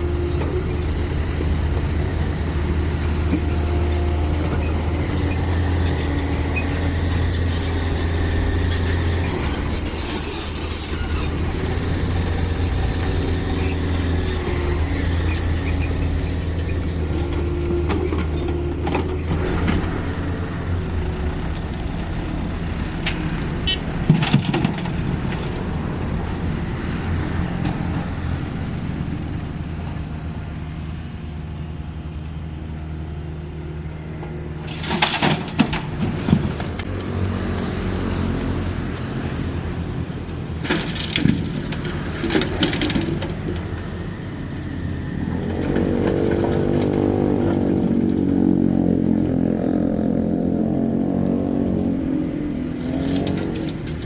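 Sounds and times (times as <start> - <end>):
excavator diesel engine running: 0.0 - 54.0
high squeal: 2.9 - 21.0.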